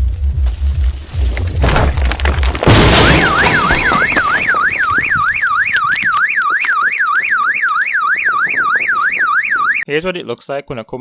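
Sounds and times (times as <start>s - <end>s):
car alarm siren whooping: 2.8s - 9.8s.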